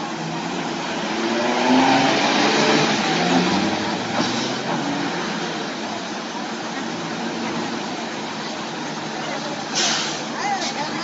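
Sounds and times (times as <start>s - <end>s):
vehicle engine accelerating: 0.0s - 9.8s.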